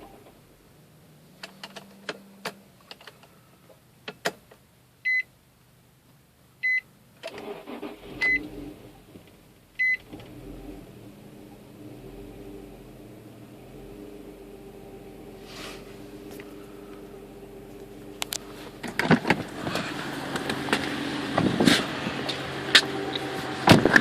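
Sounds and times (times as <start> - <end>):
low steady engine hum: 0.0 - 24.0
car engine revving: 7.4 - 9.2, 10.0 - 24.0
car warning chime beeping: 8.0 - 8.5, 9.8 - 10.1.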